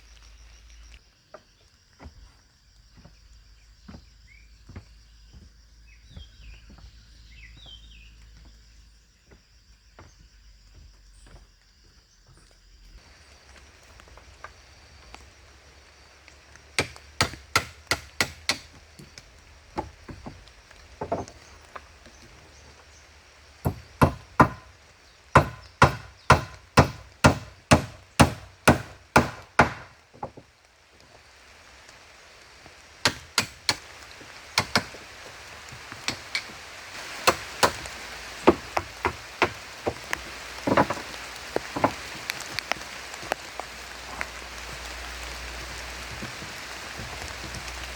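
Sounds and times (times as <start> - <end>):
rain hissing: 0.0 - 1.0, 13.0 - 47.9
wood being chopped: 16.8 - 20.4, 23.6 - 24.7, 25.4 - 30.4, 33.0 - 33.9, 34.6 - 35.0, 36.0 - 42.1.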